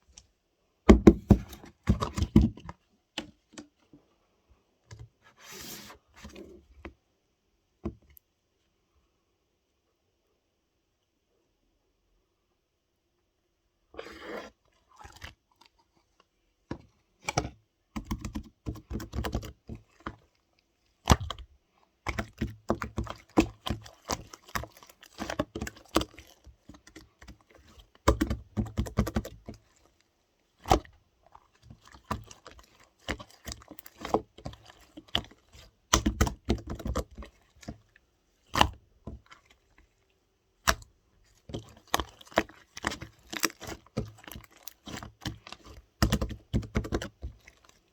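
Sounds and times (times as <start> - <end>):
slime squishing and crackling: 18.0 - 20.3, 21.0 - 21.5, 22.1 - 30.0, 30.6 - 39.9, 40.6 - 47.9.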